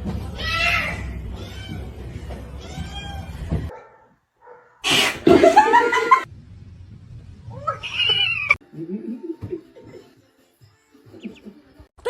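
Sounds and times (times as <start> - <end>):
cat yowling: 7.5 - 8.6
cat meowing: 7.6 - 8.6.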